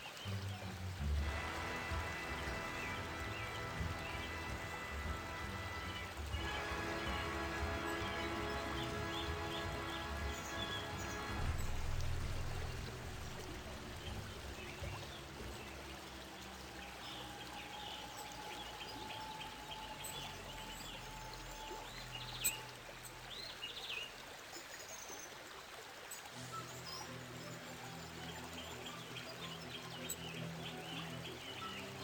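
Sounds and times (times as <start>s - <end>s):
low rumble on microphone: 0.3s - 18.0s.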